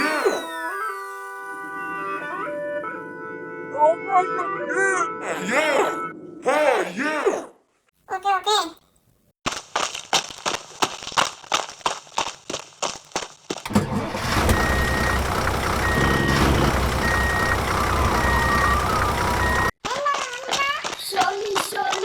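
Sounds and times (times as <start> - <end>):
motor running: 0.0 - 2.3, 13.7 - 19.7
reversing alarm beeping: 13.8 - 19.7.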